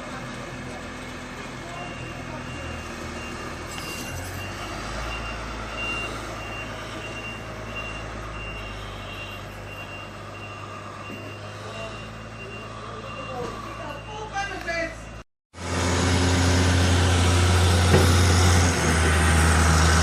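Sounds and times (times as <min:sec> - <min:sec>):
diesel engine running: 0:00.0 - 0:20.0
reversing alarm beeping: 0:01.8 - 0:15.2.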